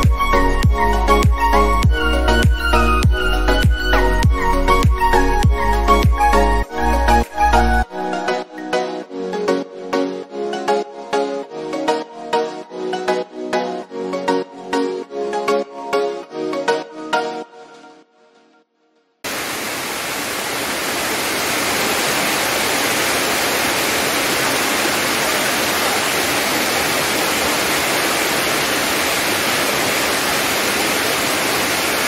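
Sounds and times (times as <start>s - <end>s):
background music: 0.0s - 18.6s
waterfall roaring: 19.3s - 32.0s.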